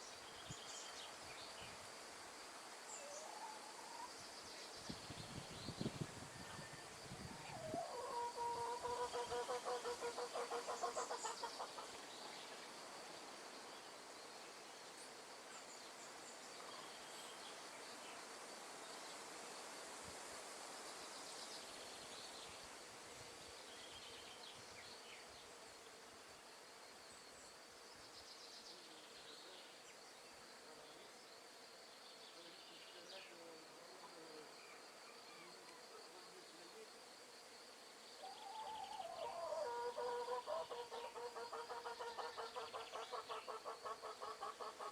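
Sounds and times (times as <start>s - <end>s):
wind in the trees: 0.0s - 26.5s
hen clucking: 8.1s - 11.9s.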